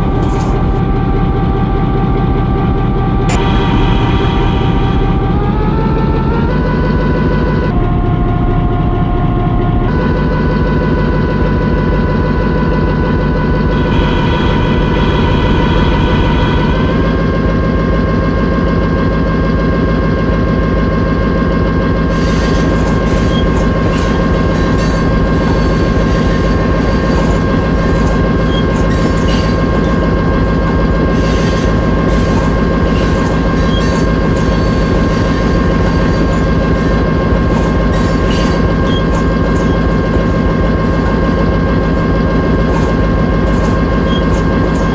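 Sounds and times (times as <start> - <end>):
locomotive running with a whine: 0.0 - 44.9.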